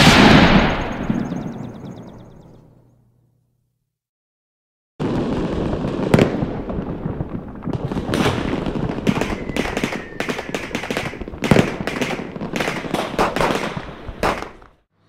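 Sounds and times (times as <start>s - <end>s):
fireworks banging and crackling: 0.0s - 2.1s, 5.0s - 14.9s
falling firework whistle: 0.0s - 2.3s, 8.1s - 11.7s.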